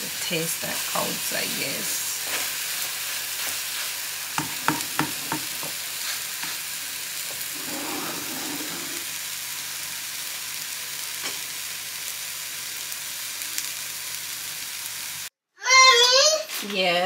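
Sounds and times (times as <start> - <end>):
batter sizzling in a pan: 0.0 - 15.3
utensil knocking against pan: 4.4 - 5.8.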